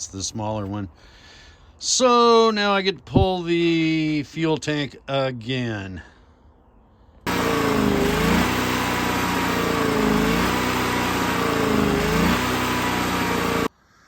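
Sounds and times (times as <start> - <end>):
generator engine running: 7.3 - 13.7.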